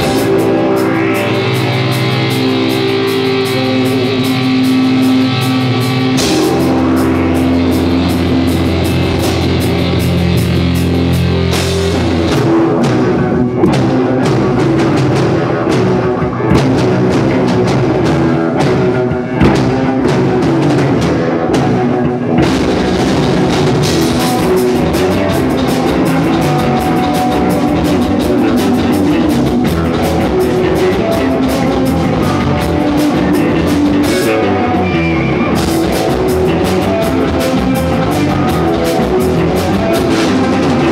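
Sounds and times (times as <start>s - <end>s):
drums playing busily: 0.0s - 40.9s
rock band playing loud: 0.0s - 40.9s.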